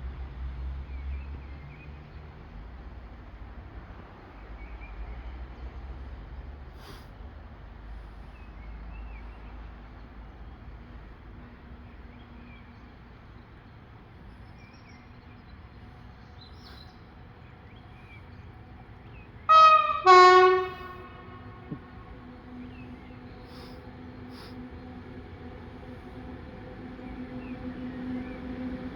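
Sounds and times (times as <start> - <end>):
locomotive air horn: 19.5 - 22.0.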